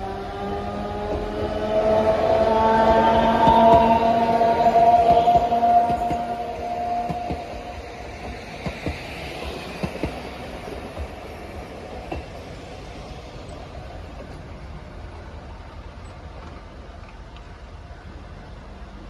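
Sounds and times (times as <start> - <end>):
electric train pulling away: 0.0 - 16.4
train wheels clacking: 2.4 - 11.2.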